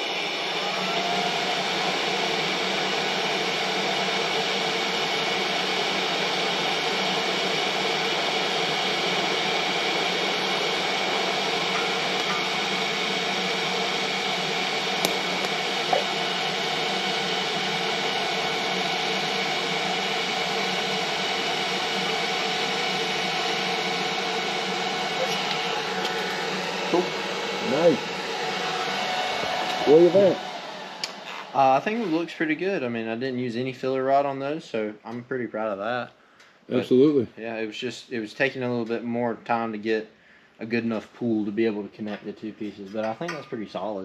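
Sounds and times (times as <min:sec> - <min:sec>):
welding equipment hiss and hum: 0:00.0 - 0:32.6.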